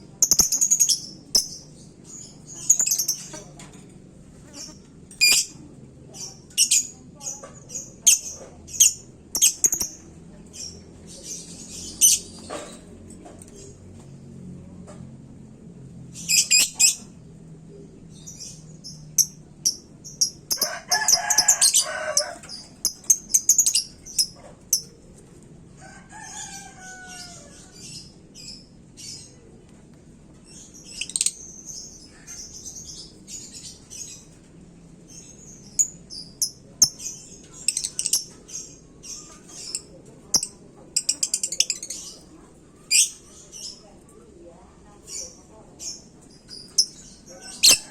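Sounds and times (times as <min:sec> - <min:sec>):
bird chirping and trilling: 0:07.7 - 0:12.4, 0:16.2 - 0:17.1, 0:30.5 - 0:34.3, 0:35.1 - 0:42.3, 0:42.9 - 0:43.8, 0:45.1 - 0:47.9.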